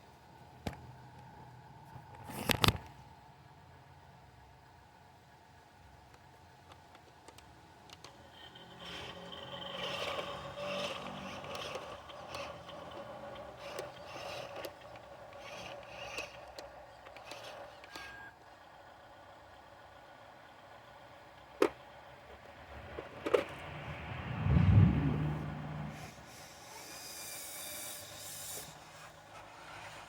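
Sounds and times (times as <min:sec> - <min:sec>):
dump truck engine running: 0:07.6 - 0:26.8.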